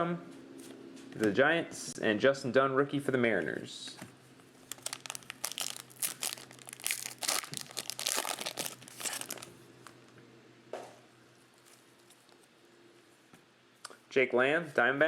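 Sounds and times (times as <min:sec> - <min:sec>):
wrapper being torn and crinkled: 0:04.6 - 0:10.0.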